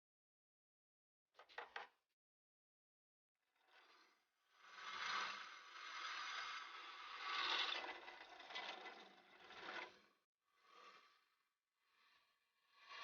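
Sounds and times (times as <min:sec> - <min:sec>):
metal mechanism scraping and rattling: 0:03.6 - 0:11.3.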